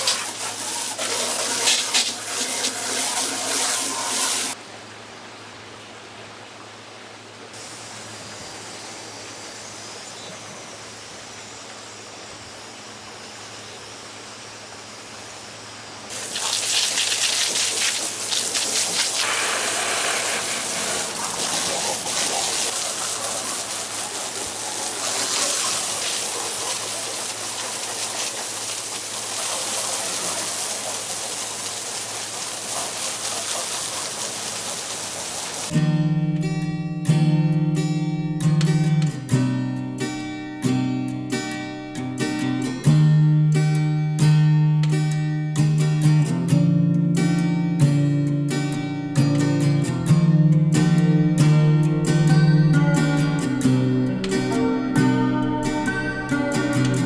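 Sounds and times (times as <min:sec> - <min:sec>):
water gushing and splashing: 0:00.0 - 0:04.6, 0:16.1 - 0:35.7.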